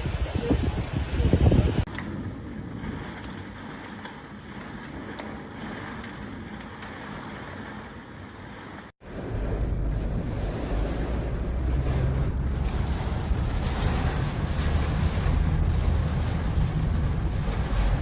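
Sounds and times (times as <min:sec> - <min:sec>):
wind rushing: 0:00.0 - 0:01.9, 0:09.0 - 0:18.0
floodwater rushing: 0:00.0 - 0:18.0
wind buffeting microphone: 0:00.0 - 0:18.0.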